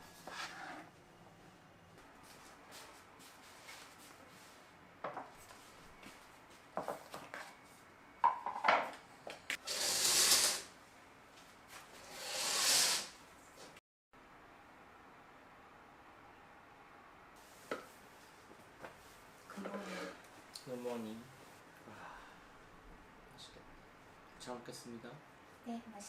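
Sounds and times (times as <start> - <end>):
hissing sounds: 9.6 - 10.7, 12.1 - 13.2.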